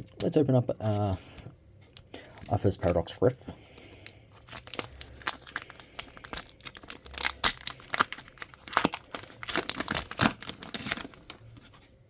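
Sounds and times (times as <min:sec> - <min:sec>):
foil wrapper crinkling and ripping: 0:04.0 - 0:11.9.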